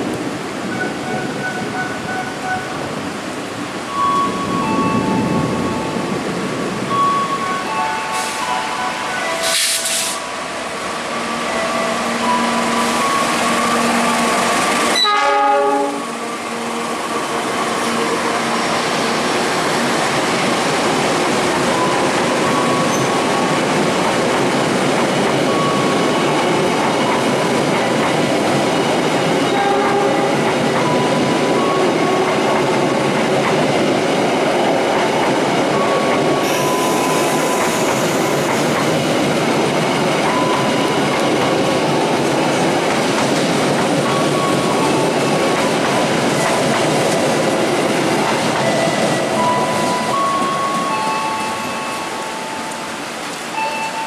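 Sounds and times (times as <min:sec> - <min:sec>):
diesel locomotive passing: 0:00.0 - 0:54.0
train horn: 0:11.8 - 0:19.3, 0:29.5 - 0:30.5, 0:31.6 - 0:32.5
train wheels clacking over rails: 0:16.5 - 0:51.9.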